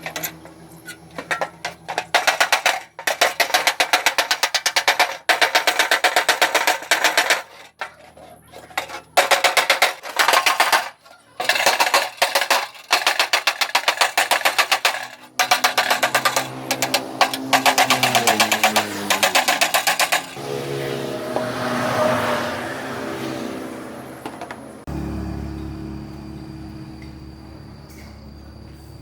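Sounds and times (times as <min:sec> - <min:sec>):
rapid repeated knocking: 0:02.1 - 0:07.6, 0:12.0 - 0:20.4.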